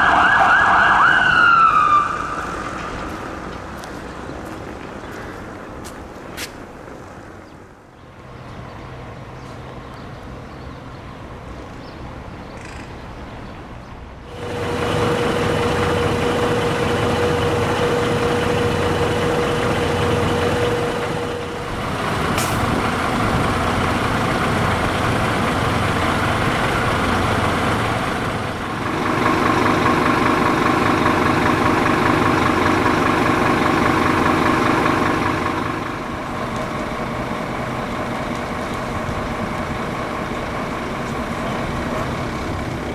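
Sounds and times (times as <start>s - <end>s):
diesel engine running: 0.0s - 6.8s, 8.1s - 42.9s
steady whine: 14.3s - 42.9s.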